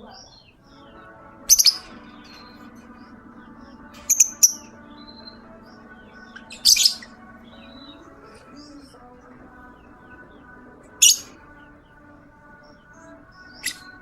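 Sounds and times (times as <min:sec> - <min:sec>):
lovebirds chirping shrilly: 0:00.0 - 0:14.0.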